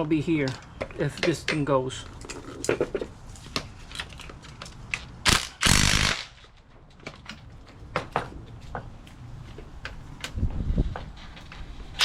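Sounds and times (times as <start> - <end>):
power tool bursts: 5.3 - 6.4.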